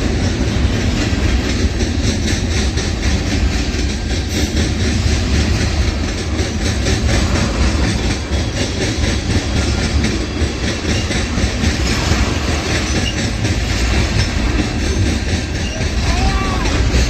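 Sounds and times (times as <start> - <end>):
light repeating wheel clacks: 0.0 - 17.0
train wheels rumbling on rails: 0.0 - 17.0.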